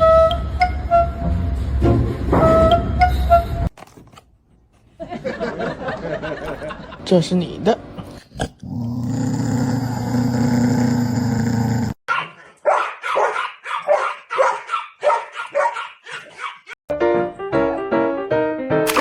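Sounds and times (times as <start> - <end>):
music: 0.0 - 3.7, 16.9 - 19.0
dog barking: 12.1 - 16.8.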